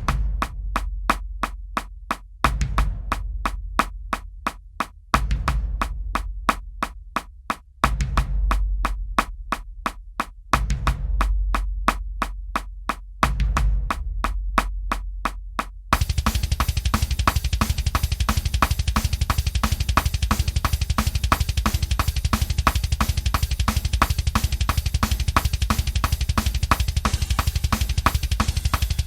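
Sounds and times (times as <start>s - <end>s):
fast thrash metal drumming: 15.9s - 29.0s.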